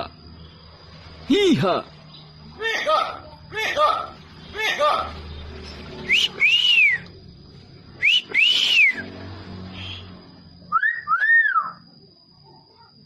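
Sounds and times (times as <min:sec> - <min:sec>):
hill myna whistling: 0:06.0 - 0:07.2, 0:07.9 - 0:11.8.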